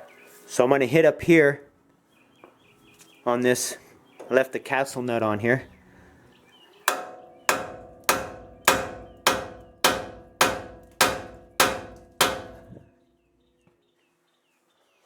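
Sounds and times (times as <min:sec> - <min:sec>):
sledgehammer striking steel: 0:06.9 - 0:12.8.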